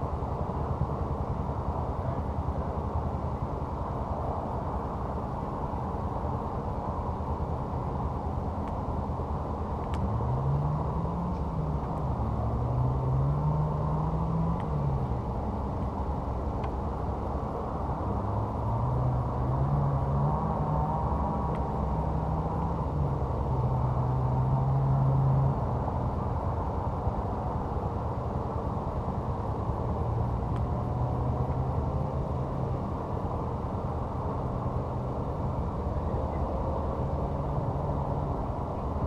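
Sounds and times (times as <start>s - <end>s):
faint sharp ticks: 9.8s - 10.1s
off-road vehicle engine revving: 10.1s - 15.0s.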